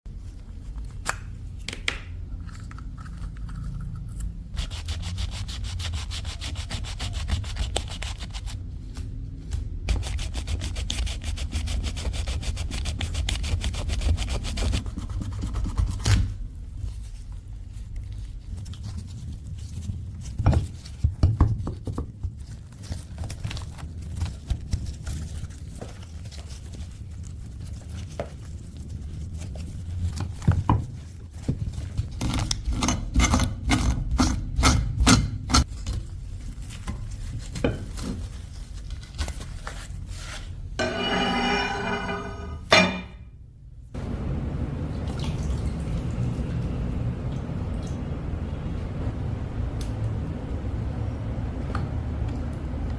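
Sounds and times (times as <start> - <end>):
hand scraping rusty cleaver: 40.8 - 43.2.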